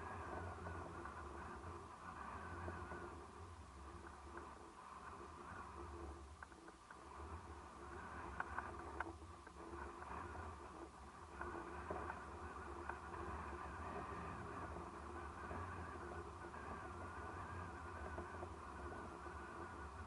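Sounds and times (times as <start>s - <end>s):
wind rumble on microphone: 0.0s - 20.0s
small clicks: 6.3s - 7.3s, 8.0s - 10.2s.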